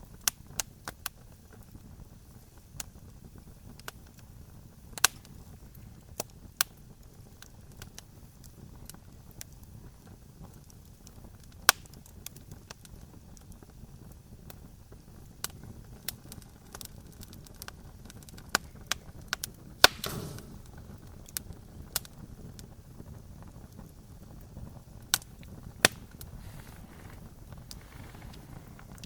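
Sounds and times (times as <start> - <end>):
campfire crackling: 0.0 - 29.0
short fire hiss: 19.8 - 20.8.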